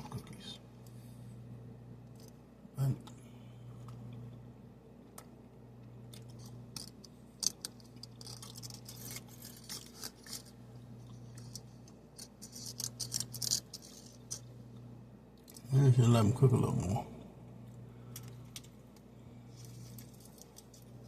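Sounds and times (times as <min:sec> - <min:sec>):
steady low hum: 0:00.0 - 0:21.0
faint crackles and clicks: 0:05.0 - 0:15.7, 0:17.6 - 0:21.0.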